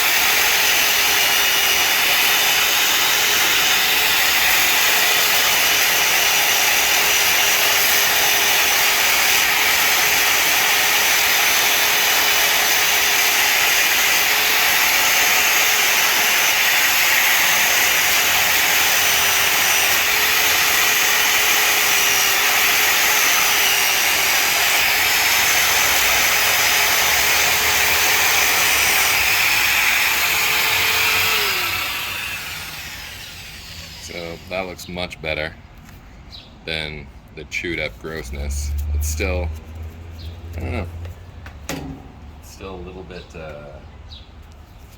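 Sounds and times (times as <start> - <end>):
electric grinder grinding bone: 0.0 - 34.7
motor winding down: 12.1 - 34.6.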